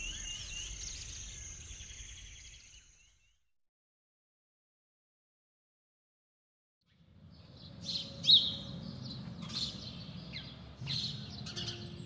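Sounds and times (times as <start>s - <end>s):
outdoor ambience: 0.0s - 3.5s, 6.8s - 12.0s
songbird chirping: 0.0s - 3.5s, 6.9s - 12.0s.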